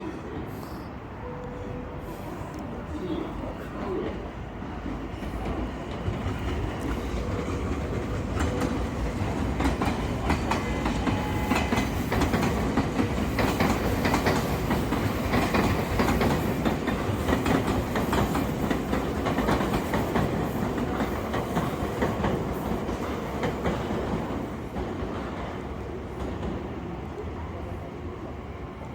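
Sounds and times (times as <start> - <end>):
electric train running on rails: 0.0 - 28.9
wheels clacking over rail joints: 4.8 - 25.4.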